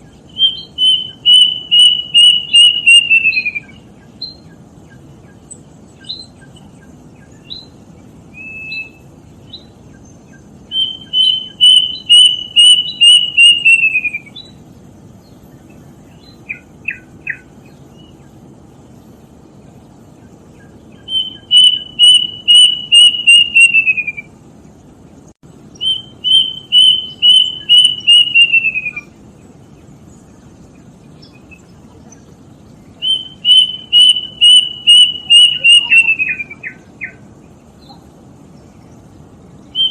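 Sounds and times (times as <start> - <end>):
cuckoo whistling song: 0.0 - 14.6, 15.6 - 18.2, 20.2 - 24.4, 25.7 - 29.2, 32.9 - 37.2, 39.6 - 39.9.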